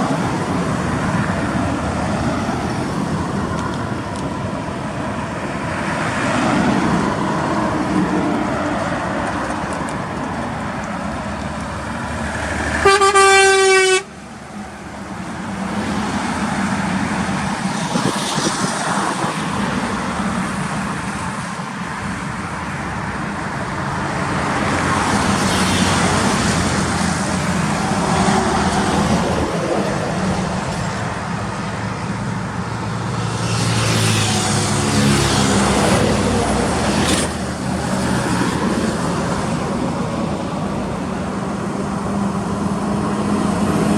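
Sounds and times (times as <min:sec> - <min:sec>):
truck and traffic noise: 0:00.0 - 0:43.9
loud horn blast: 0:12.6 - 0:14.2.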